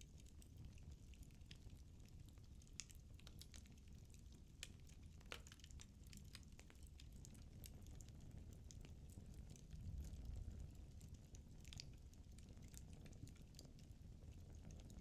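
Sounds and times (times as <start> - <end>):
firewood crackling and popping: 2.5 - 8.0.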